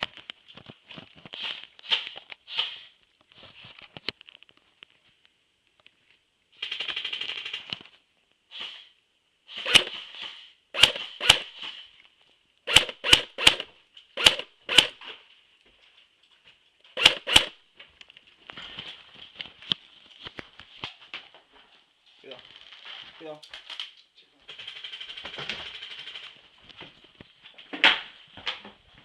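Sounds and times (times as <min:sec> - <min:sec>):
airsoft gun full-auto burst: 0:09.5 - 0:11.8, 0:12.7 - 0:15.0, 0:17.0 - 0:17.6
airsoft gun single shots: 0:09.6 - 0:11.8, 0:12.7 - 0:15.0, 0:17.0 - 0:17.6.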